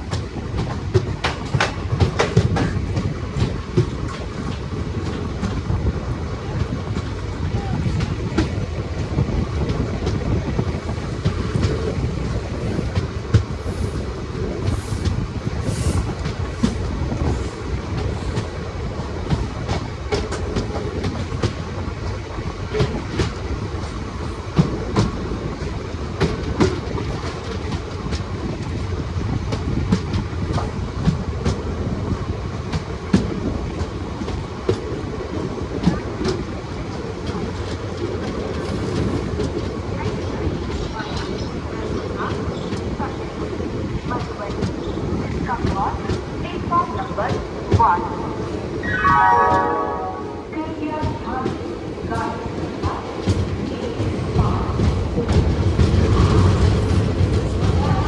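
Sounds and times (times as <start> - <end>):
train rumbling: 0.0 - 58.0
wheels clicking over rails: 0.1 - 31.6.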